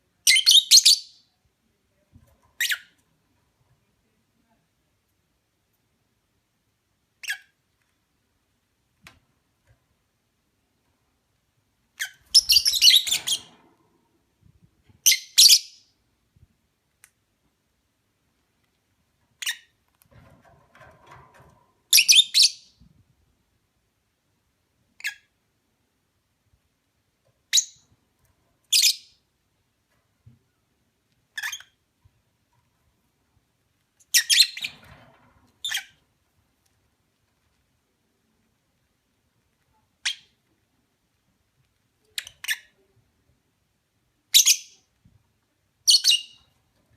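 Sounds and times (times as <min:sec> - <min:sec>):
lovebirds chirping: 0:12.0 - 0:13.5, 0:45.8 - 0:46.5.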